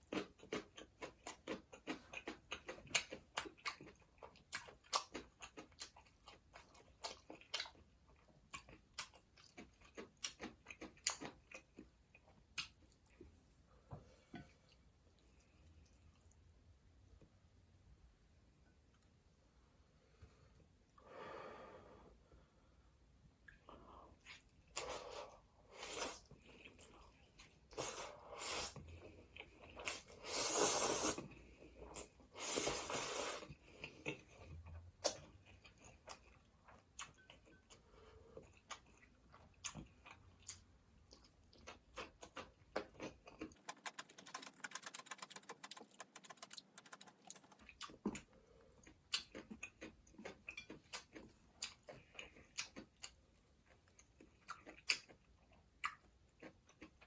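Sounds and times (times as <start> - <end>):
person chewing and biting food: 38.6 - 57.0.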